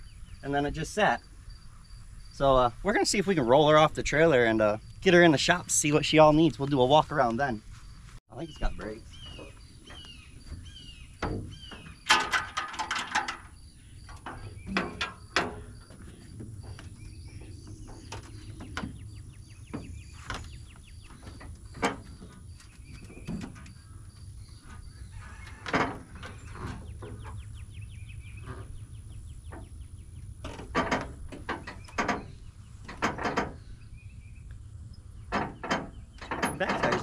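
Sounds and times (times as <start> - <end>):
birds chirping: 0.0 - 37.0
sharp knocks and clunks: 8.6 - 27.7, 28.3 - 33.7, 35.2 - 37.0.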